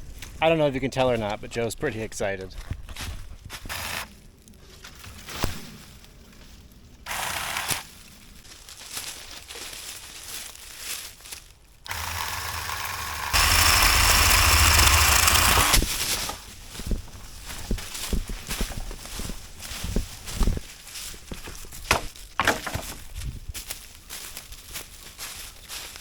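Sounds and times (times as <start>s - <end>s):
electric chainsaw cutting wood: 3.7s - 4.1s, 7.1s - 7.9s, 11.9s - 15.9s.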